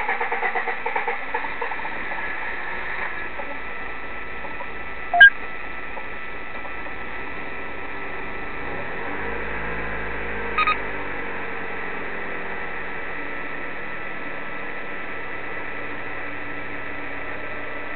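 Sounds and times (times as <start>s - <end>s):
electronic beeps: 5.2s - 5.4s.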